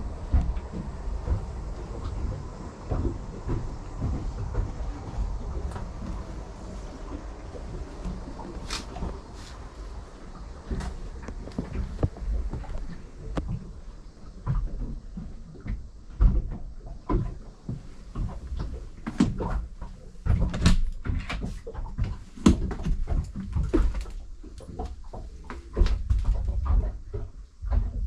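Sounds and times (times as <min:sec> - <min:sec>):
low rumbling noise: 0:00.0 - 0:28.0
knocks and creaks of deck fittings: 0:14.4 - 0:28.0.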